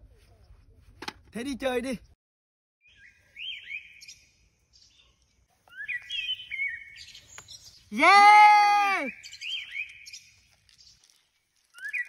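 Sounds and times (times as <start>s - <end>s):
small birds chirping: 2.8s - 12.0s.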